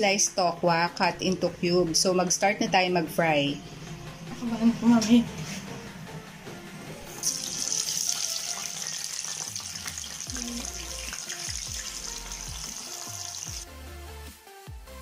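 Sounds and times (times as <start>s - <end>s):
tofu sizzling in oil: 7.2s - 13.6s.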